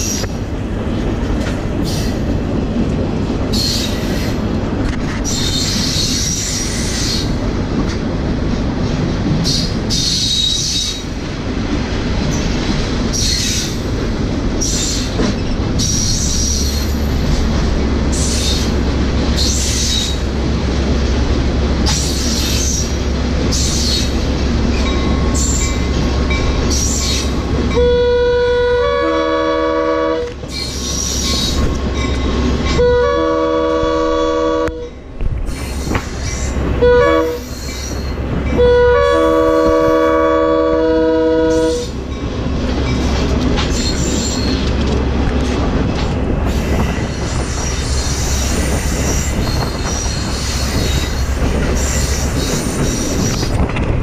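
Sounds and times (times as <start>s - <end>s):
train wheels rumbling on rails: 0.0s - 54.0s
train horn: 27.7s - 30.4s, 32.7s - 35.0s, 36.8s - 37.6s, 38.5s - 42.0s
wheel squeals: 43.6s - 44.8s, 46.5s - 53.6s.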